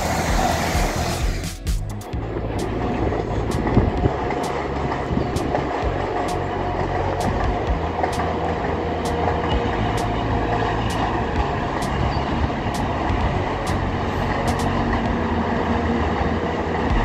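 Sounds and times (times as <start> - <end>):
freight train rumbling past: 0.0 - 17.0.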